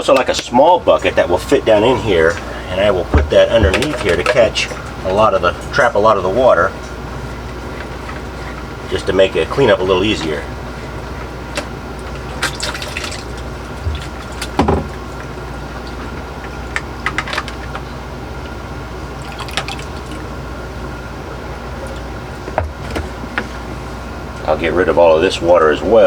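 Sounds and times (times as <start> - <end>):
steady hum: 0.0 - 26.0
water running and dripping into bucket: 11.9 - 15.1, 19.2 - 20.3.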